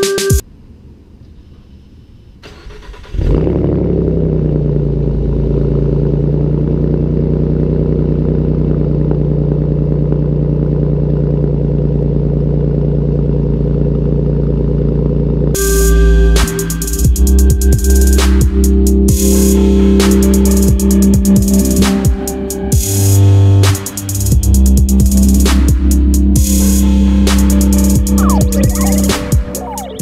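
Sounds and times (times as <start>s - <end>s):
car engine revving and idling: 2.9s - 15.6s.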